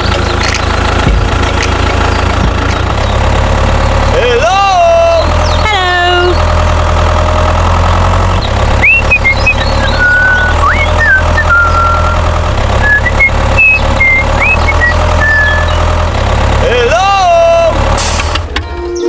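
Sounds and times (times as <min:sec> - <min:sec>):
tractor engine running: 0:00.0 - 0:19.0
high chirping whistles: 0:08.8 - 0:15.9.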